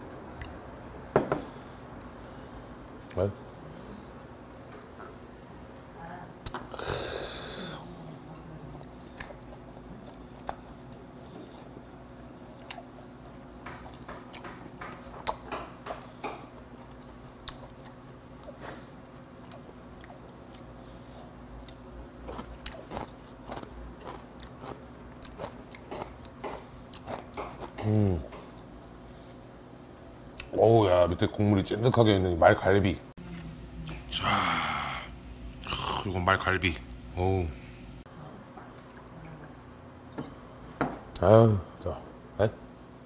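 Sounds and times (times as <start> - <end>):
man chewing meat: 7.8 - 30.5
wet mouth smacking: 15.2 - 16.2, 17.4 - 18.6.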